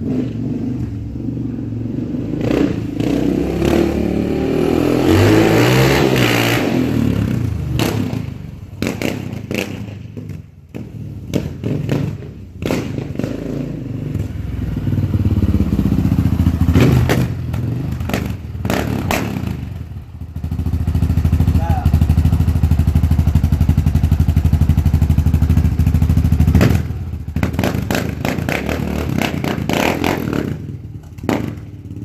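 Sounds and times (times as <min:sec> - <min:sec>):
atv engine revving: 0:00.0 - 0:32.0.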